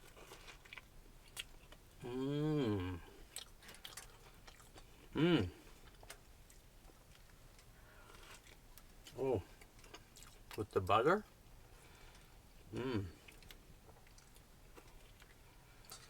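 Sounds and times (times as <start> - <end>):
person chewing: 0.0 - 10.6, 12.1 - 16.0
man humming mmm: 2.0 - 3.2, 5.2 - 5.6, 12.7 - 13.2.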